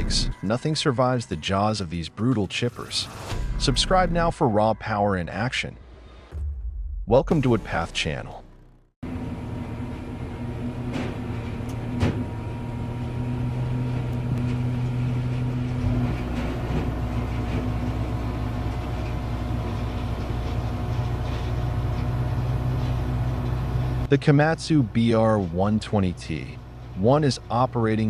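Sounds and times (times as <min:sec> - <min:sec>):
deep rumble: 0:05.7 - 0:09.0
diesel engine running under load: 0:08.5 - 0:28.0.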